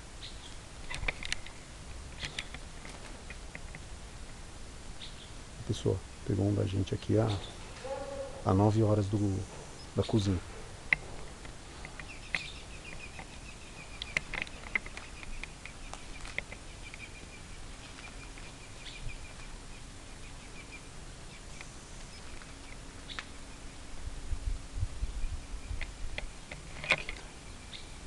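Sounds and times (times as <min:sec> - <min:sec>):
low rumble of movement: 0:00.6 - 0:27.6
sharp clicks: 0:00.8 - 0:03.8, 0:10.9 - 0:17.1
bird chirping rapidly: 0:05.0 - 0:05.4, 0:06.1 - 0:11.1, 0:11.9 - 0:23.9.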